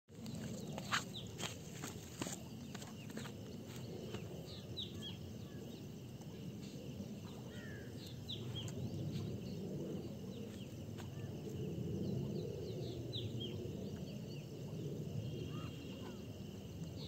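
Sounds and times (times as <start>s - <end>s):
low outdoor background noise: 0.1s - 17.0s
small birds chirping: 0.2s - 6.4s.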